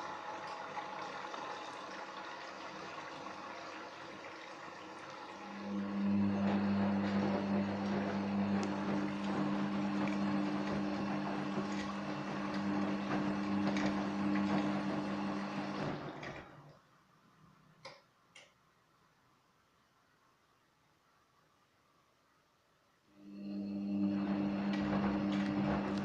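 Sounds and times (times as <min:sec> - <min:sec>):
rushing water: 0:00.0 - 0:15.8
washing machine drain pump humming: 0:00.0 - 0:16.8, 0:23.2 - 0:26.0.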